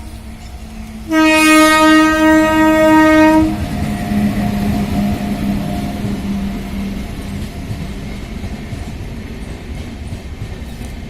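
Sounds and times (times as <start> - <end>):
train rumbling on track: 0.0 - 11.0
train horn blast: 0.8 - 6.6.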